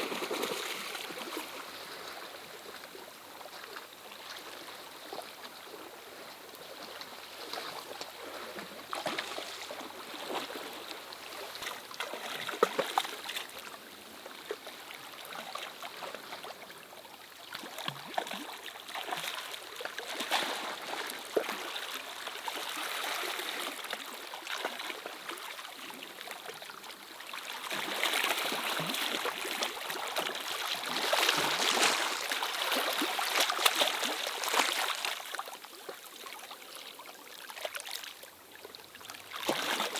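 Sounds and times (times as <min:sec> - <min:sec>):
water running and splashing: 0:30.7 - 0:34.7.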